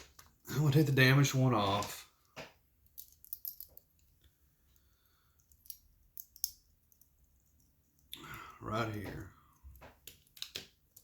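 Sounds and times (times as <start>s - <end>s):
watch clasp clicks and rattles: 5.4s - 8.1s.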